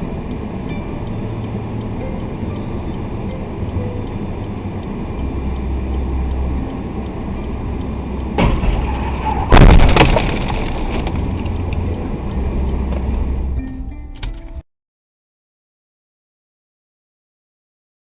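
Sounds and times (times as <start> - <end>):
car road and engine noise: 0.0 - 14.6
sharp knocks: 8.4 - 8.9
loud impact crash: 8.4 - 11.0.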